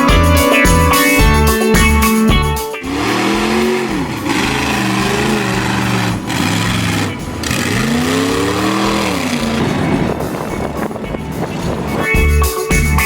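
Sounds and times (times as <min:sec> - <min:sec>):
vehicle engine revving hard: 0:02.8 - 0:12.1
steady rushing noise: 0:02.8 - 0:12.4.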